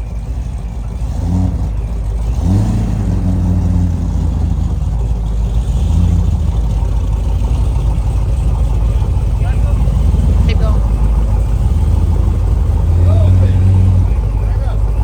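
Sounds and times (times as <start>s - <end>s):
car engine running: 0.0s - 15.0s
low rumble: 0.0s - 15.0s.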